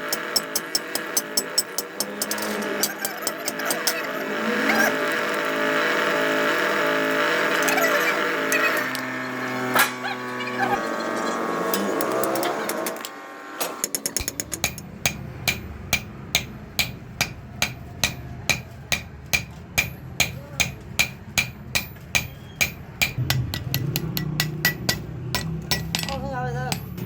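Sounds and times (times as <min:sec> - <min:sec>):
hammer on anvil: 0:00.0 - 0:04.0, 0:13.7 - 0:27.0.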